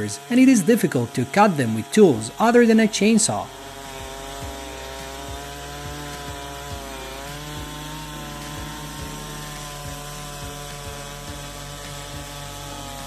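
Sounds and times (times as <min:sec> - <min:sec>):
chainsaw cutting tree trunk: 0:00.0 - 0:13.0.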